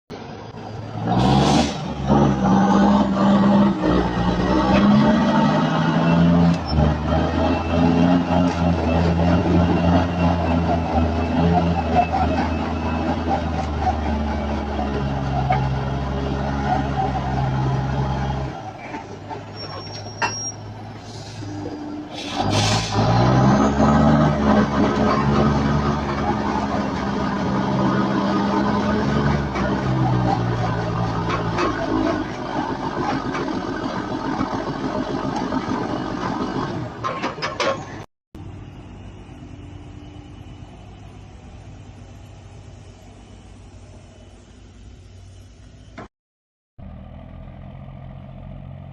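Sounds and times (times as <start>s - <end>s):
truck engine running: 0.1s - 46.0s
quieter engine running steadily: 38.4s - 46.0s.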